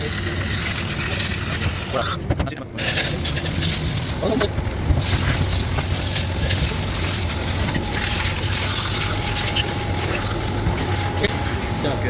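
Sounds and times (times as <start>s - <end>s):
low hum: 0.0s - 12.0s
rushing spray hiss: 2.8s - 12.0s.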